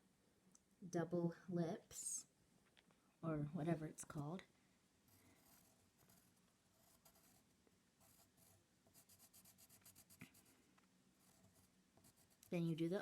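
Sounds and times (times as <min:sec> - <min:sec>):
pencil strokes scratching paper: 0:05.1 - 0:07.4, 0:08.0 - 0:10.6, 0:11.2 - 0:13.0.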